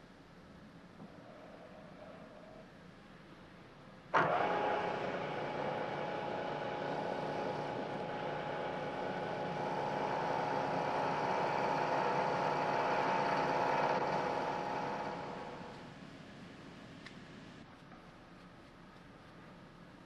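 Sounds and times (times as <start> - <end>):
milling machine cutting metal: 4.2 - 15.7.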